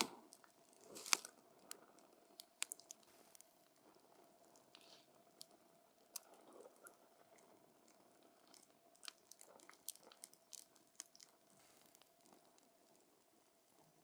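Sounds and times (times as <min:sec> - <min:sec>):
campfire crackling: 0:00.0 - 0:04.6.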